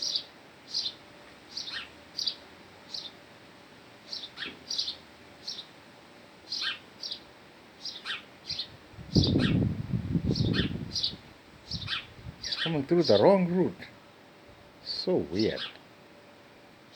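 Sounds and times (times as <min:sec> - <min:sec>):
small songbird chirping: 0:00.0 - 0:03.2, 0:04.0 - 0:05.8, 0:06.4 - 0:13.8, 0:14.8 - 0:15.8.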